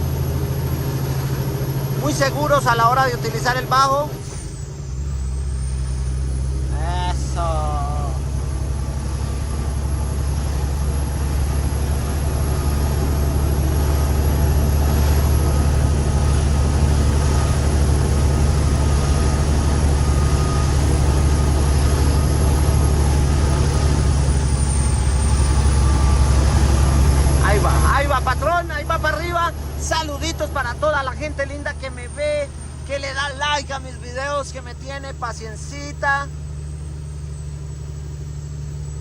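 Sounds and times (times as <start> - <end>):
diesel truck engine drone: 0.0 - 39.0.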